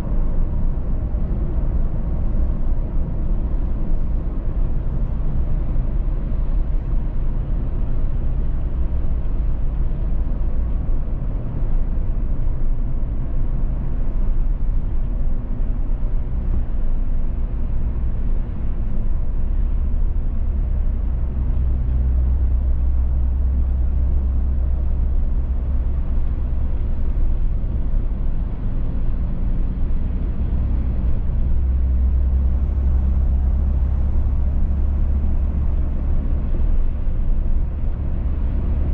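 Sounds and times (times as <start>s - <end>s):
car road rumble and tyre noise: 0.0s - 38.9s.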